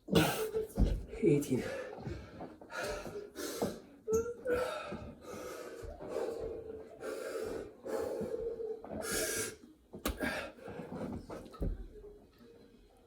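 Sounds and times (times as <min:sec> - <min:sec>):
person breathing hard wheezing: 0:01.7 - 0:09.6.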